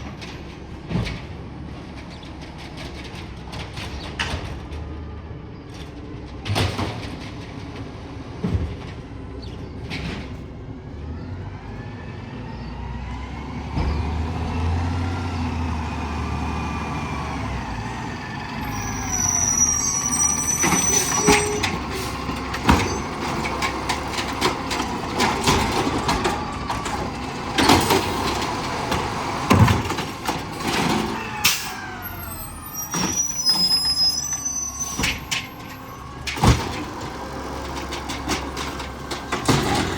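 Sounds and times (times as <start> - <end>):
garbage truck engine revving: 9.2 - 39.9
high squeals: 16.6 - 23.6, 30.7 - 36.2.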